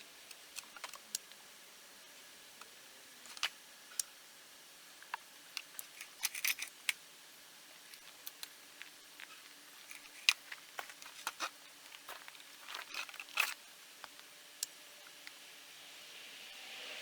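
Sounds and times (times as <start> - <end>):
small parts clicking and tapping: 0.2 - 1.4, 2.6 - 4.2, 5.0 - 7.0, 7.7 - 15.5.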